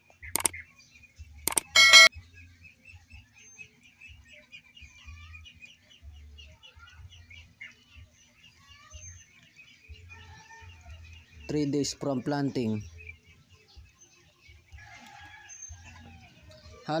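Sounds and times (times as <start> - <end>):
small birds chirping: 0.0 - 17.0
click and bright chime: 1.5 - 2.1.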